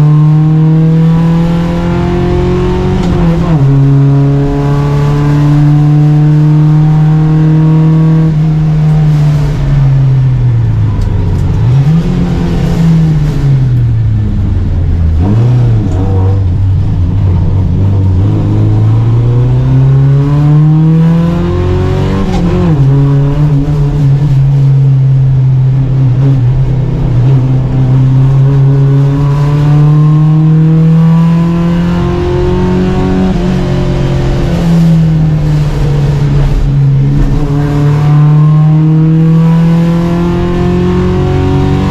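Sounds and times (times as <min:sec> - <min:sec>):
race car engine revving: 0:00.0 - 0:41.9.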